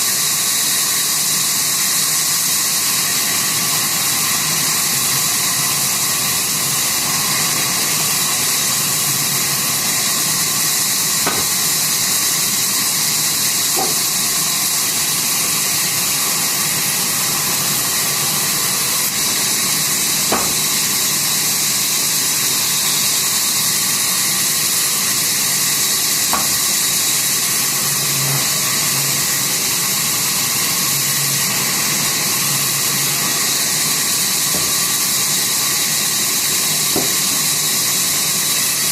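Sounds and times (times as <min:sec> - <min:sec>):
sawmill saw hissing: 0:00.0 - 0:38.9.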